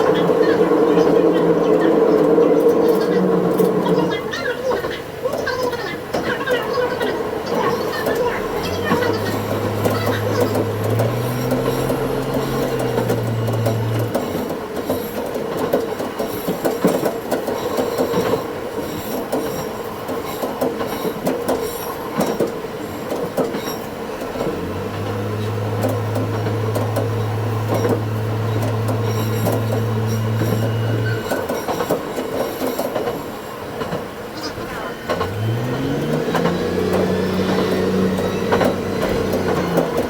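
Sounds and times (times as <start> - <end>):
railcar running on track: 0.0 - 40.0
high-pitched wheel squeal: 5.9 - 15.2, 25.1 - 32.8, 34.4 - 40.0.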